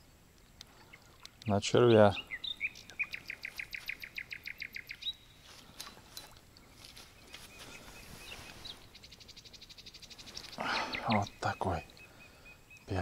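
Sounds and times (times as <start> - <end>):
faint bird chirps: 0.0 - 13.0
bird trilling: 2.1 - 5.3, 7.5 - 13.0.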